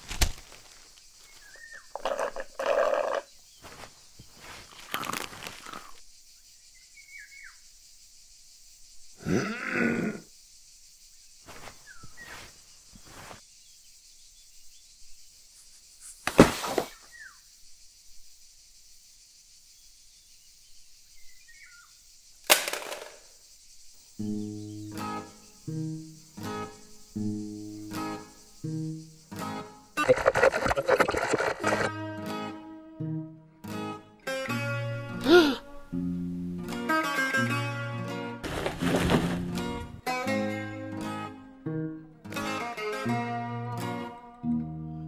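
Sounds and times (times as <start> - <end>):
faint bird chirps: 0.7 - 4.8, 5.6 - 22.4
radio crashing against metal bin: 22.5 - 23.1.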